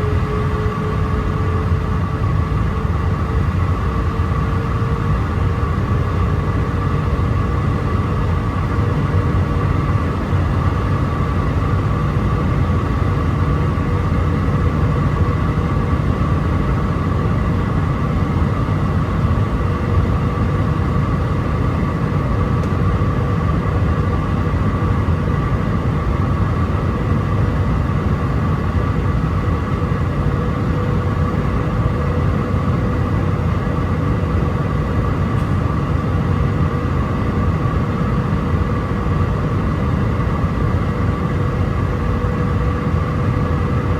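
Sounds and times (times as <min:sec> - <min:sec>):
airplane cabin engine rumble: 0:00.0 - 0:43.9
steady whine: 0:00.0 - 0:43.9.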